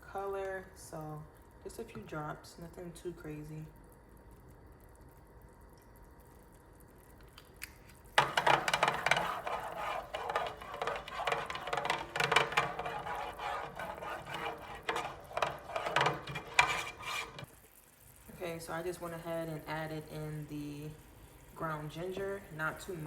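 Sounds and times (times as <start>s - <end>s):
utensil scraping a pot: 8.2s - 17.5s.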